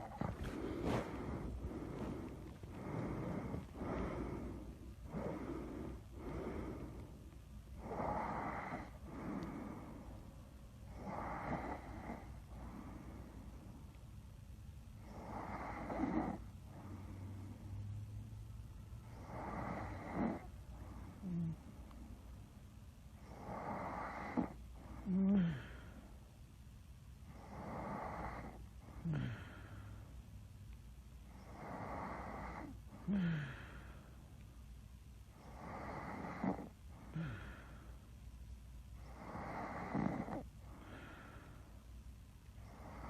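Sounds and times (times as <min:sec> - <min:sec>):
person snoring: 0:00.0 - 0:07.0, 0:07.8 - 0:10.0, 0:10.9 - 0:13.3, 0:15.1 - 0:17.4, 0:19.2 - 0:21.7, 0:23.3 - 0:25.8, 0:27.4 - 0:29.7, 0:35.4 - 0:37.7, 0:39.1 - 0:41.4.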